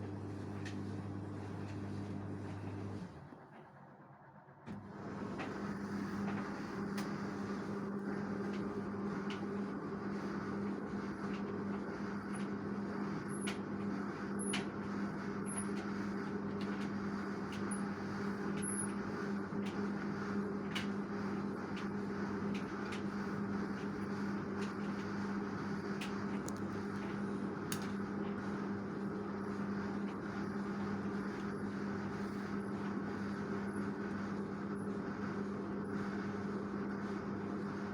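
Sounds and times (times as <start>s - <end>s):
washing machine humming: 0.0s - 37.9s.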